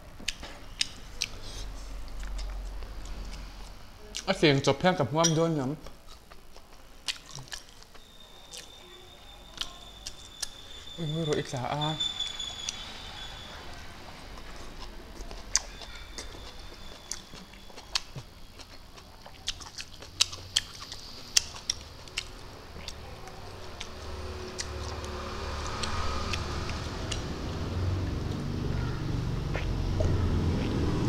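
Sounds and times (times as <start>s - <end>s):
chewing and lip-smacking: 0.2s - 3.4s, 5.8s - 8.8s, 14.1s - 27.5s, 29.4s - 31.0s
low rumble: 1.0s - 4.2s
sharp mouth clicks: 29.5s - 30.8s.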